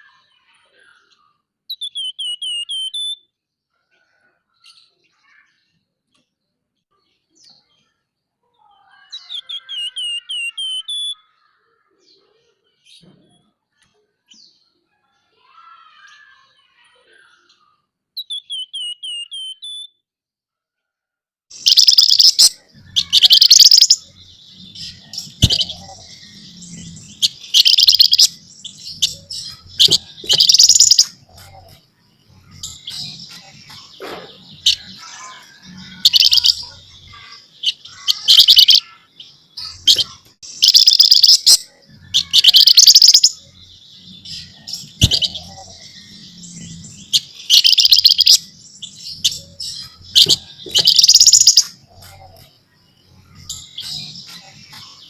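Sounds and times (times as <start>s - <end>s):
bird scratchy chattering: 21.6s - 24.1s, 24.7s - 31.8s, 32.4s - 39.0s, 39.6s - 41.6s, 42.2s - 43.4s, 44.5s - 52.5s, 53.4s - 55.0s
bird whistled notes: 29.0s - 31.7s, 39.9s - 41.5s, 50.1s - 52.4s.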